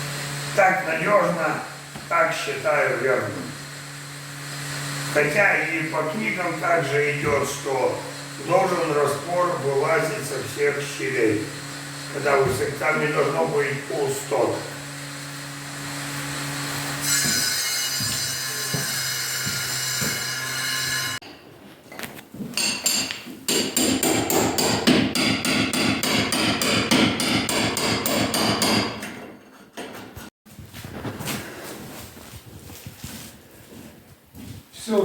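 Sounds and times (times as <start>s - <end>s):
steady mechanical hum: 0.0s - 21.2s
hammer striking fast: 22.6s - 29.0s.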